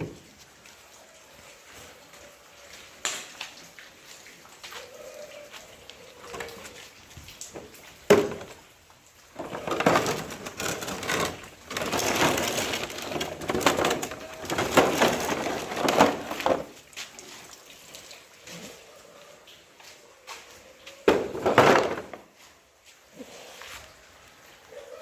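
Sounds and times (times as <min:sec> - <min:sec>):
dense irregular crackling: 0:09.3 - 0:16.8.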